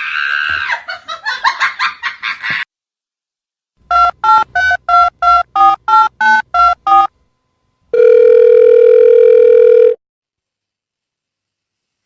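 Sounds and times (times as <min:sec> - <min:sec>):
long steady phone tone: 0:03.9 - 0:07.1, 0:07.9 - 0:10.0.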